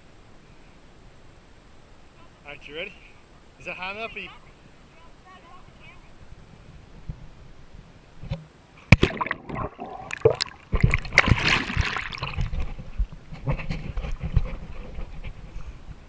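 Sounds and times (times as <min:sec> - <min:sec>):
person splashing into river: 0:08.9 - 0:12.7
churning sloshing water: 0:09.0 - 0:13.2.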